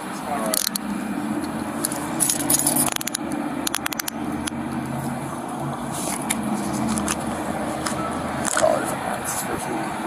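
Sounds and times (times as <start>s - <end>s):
vehicle engine idling: 0.0s - 10.0s
metallic clicking and jingling: 1.8s - 4.2s.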